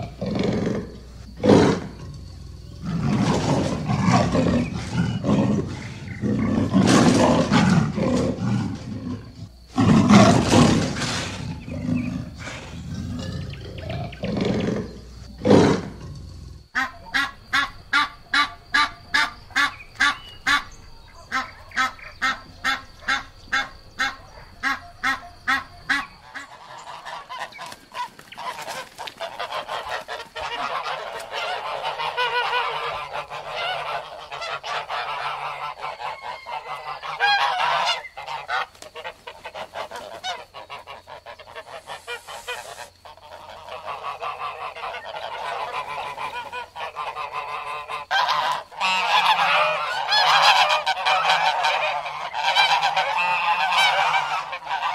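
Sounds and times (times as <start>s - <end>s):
geese honking: 16.8s - 54.9s.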